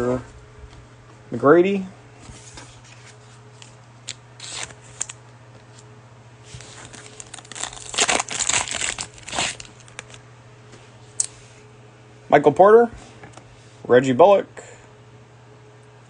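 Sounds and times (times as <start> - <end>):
low steady hum: 0.0 - 16.0
cellophane wrapper crinkling: 6.5 - 10.2.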